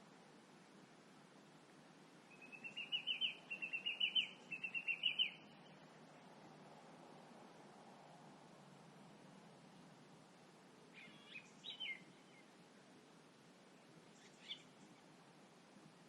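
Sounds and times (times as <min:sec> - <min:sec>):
faint steady hum: 0:00.0 - 0:16.0
songbird singing repeated notes: 0:02.2 - 0:06.0, 0:10.9 - 0:12.6, 0:14.0 - 0:15.2.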